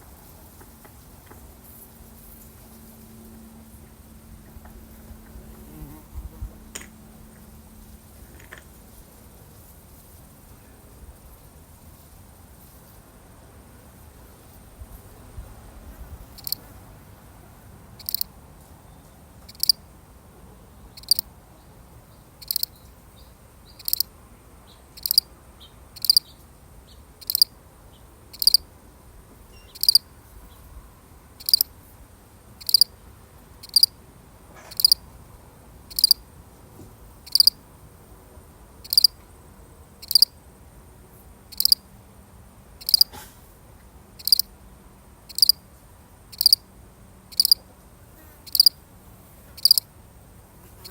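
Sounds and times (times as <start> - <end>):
cricket chirping: 16.3 - 16.7, 18.0 - 18.4, 19.5 - 19.8, 20.9 - 21.3, 22.3 - 24.1, 24.7 - 25.3, 26.0 - 26.4, 27.2 - 27.6, 28.3 - 28.7, 29.5 - 30.6, 31.4 - 31.8, 32.6 - 33.0, 33.6 - 34.0, 34.6 - 35.1, 35.9 - 36.3, 37.2 - 42.2, 42.8 - 43.2, 44.2 - 44.5, 45.3 - 45.6, 46.3 - 46.7, 47.3 - 47.7, 48.4 - 48.8, 49.6 - 50.9.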